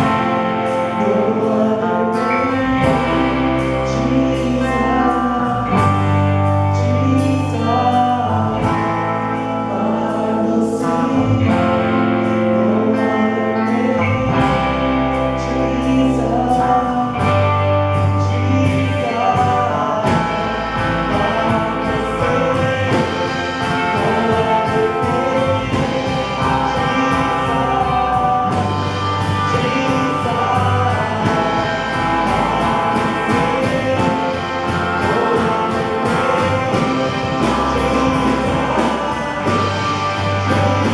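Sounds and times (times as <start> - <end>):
band accompaniment: 0.0 - 40.9
singing: 0.0 - 40.9.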